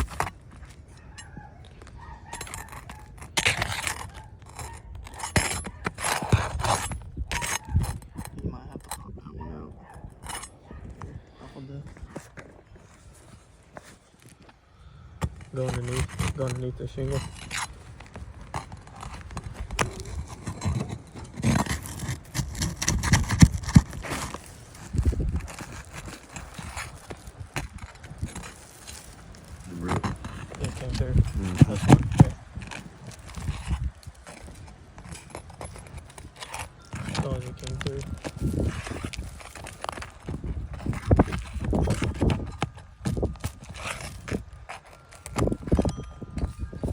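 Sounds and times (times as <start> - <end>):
scraping and crunching shingle: 0.0 - 46.9
tool knocking under roof shingle: 30.0 - 34.8.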